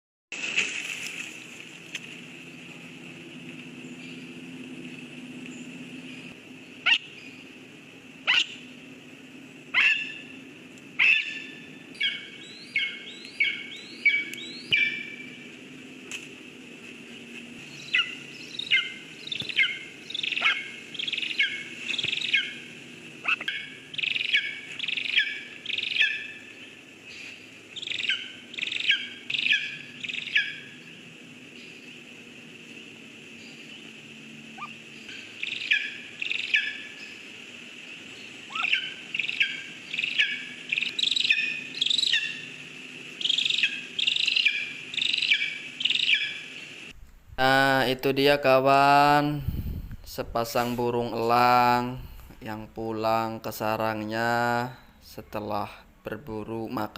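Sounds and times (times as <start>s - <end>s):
eagle calling: 6.1s - 7.6s, 8.2s - 8.8s, 9.7s - 15.5s, 17.7s - 30.8s, 34.6s - 37.3s, 38.2s - 42.6s, 43.2s - 46.7s.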